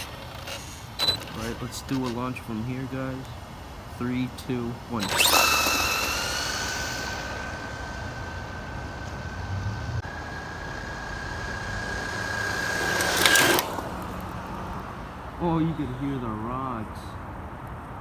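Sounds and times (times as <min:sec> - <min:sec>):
rc car electric motor whining: 0:00.0 - 0:16.0
loud rushing burst: 0:04.9 - 0:14.6.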